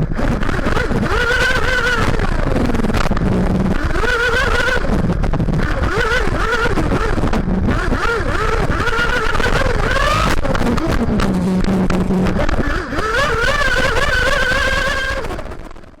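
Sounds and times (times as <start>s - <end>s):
chassis rumble: 0.0s - 16.0s
model car engine revving: 0.0s - 16.0s.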